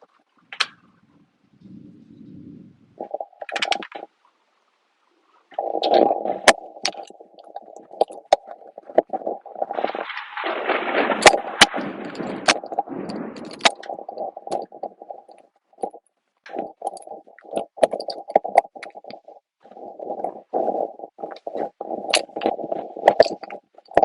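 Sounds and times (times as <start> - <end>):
sharp crackles and pops: 0.0 - 1.1, 2.9 - 24.0
thunder rumbling: 5.6 - 24.0.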